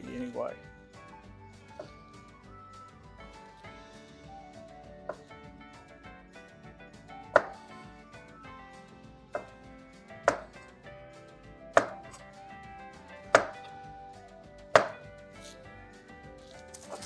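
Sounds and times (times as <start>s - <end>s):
knife chopping potatoes on board: 7.3s - 7.8s, 9.4s - 10.6s, 11.7s - 12.3s, 13.3s - 13.7s, 14.8s - 15.1s.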